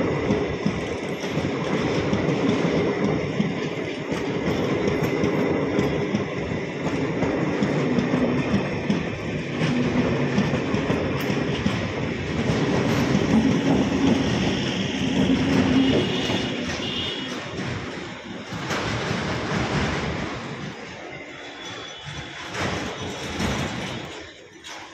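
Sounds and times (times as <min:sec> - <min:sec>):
train wheels rumbling on rails: 0:00.0 - 0:24.9.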